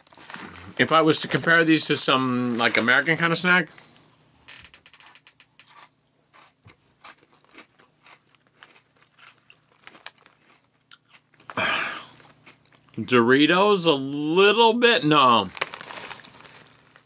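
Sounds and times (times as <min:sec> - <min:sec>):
chewing crunchy snacks: 0:05.5 - 0:13.0.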